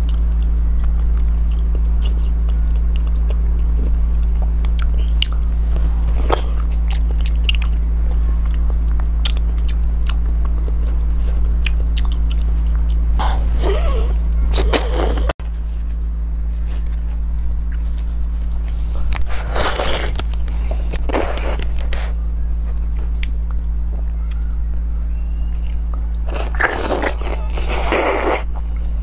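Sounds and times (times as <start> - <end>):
mouth chewing and smacking: 0.0 - 13.3, 19.1 - 24.5, 25.2 - 29.0
low hum: 0.0 - 29.0.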